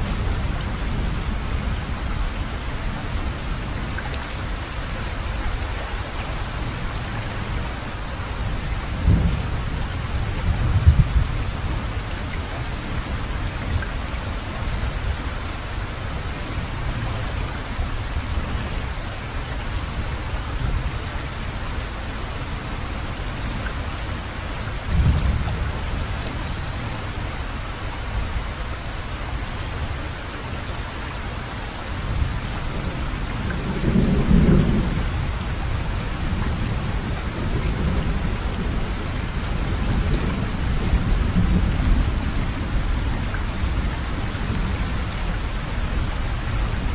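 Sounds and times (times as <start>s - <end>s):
heavy rain: 0.0s - 46.9s
rolling thunder: 9.0s - 11.9s, 33.6s - 42.3s.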